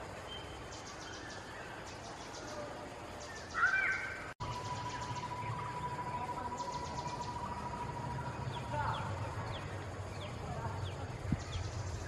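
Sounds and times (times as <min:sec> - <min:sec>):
birds calling: 0:00.0 - 0:12.0
steady high tone: 0:04.4 - 0:09.5.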